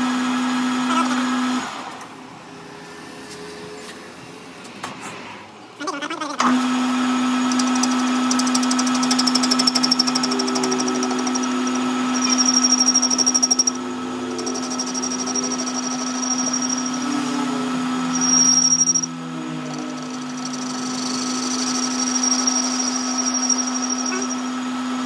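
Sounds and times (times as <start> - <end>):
machine motor humming: 6.4 - 25.0
rapid high-pitched ticking: 7.5 - 17.2, 18.0 - 24.4
thin high whine: 7.5 - 25.0.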